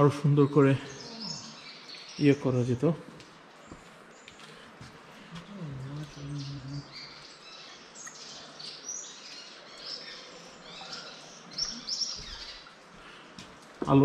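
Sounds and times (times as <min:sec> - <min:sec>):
small birds chirping: 0:00.0 - 0:14.0
low hummed voice: 0:05.3 - 0:07.0.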